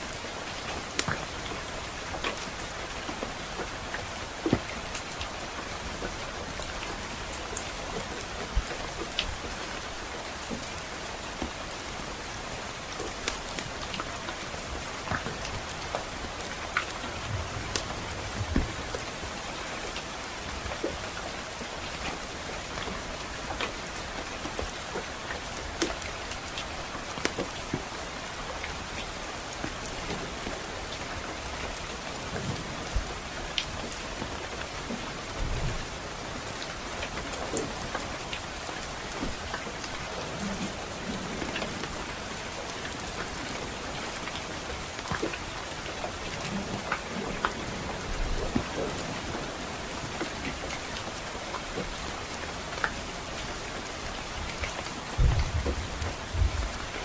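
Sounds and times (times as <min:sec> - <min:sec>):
steady soft rain: 0:00.0 - 0:57.0
wood fire crackling: 0:04.4 - 0:10.7.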